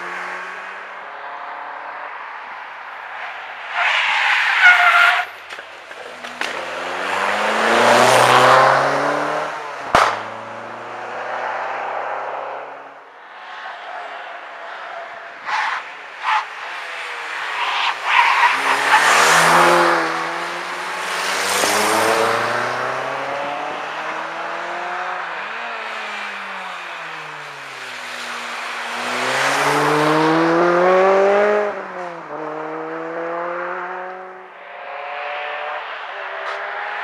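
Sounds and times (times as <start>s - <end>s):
car engines revving: 0.0s - 37.0s
sharp bangs: 9.9s - 10.5s.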